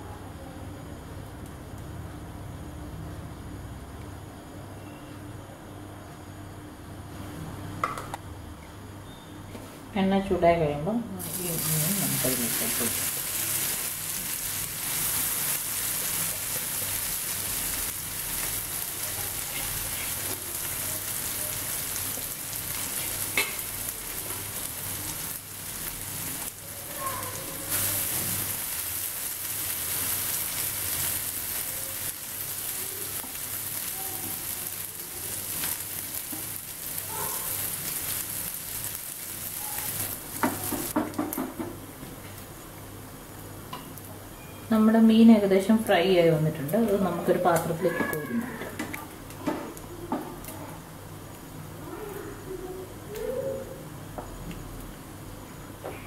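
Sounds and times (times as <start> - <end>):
fish sizzling in hot oil: 11.2 - 41.6.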